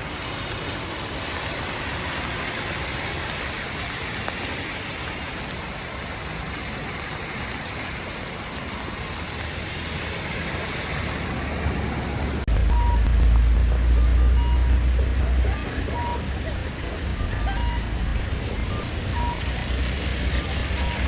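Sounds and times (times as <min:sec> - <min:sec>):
heavy rain: 0:00.0 - 0:21.0
traffic through flooded road: 0:00.0 - 0:21.0
low rumble: 0:11.0 - 0:21.0
short high beeps: 0:12.7 - 0:13.1, 0:14.0 - 0:14.8, 0:15.9 - 0:16.3, 0:17.1 - 0:19.6, 0:20.4 - 0:21.0.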